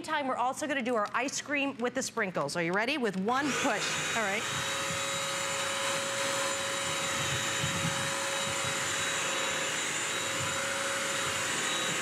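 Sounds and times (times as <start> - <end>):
wet dry vacuum running: 3.3 - 12.0.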